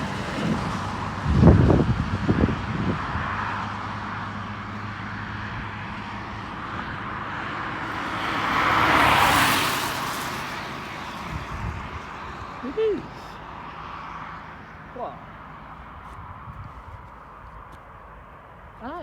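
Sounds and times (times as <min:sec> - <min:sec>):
jet engine hum: 0:05.6 - 0:14.9
jet engine rushing: 0:07.7 - 0:12.8.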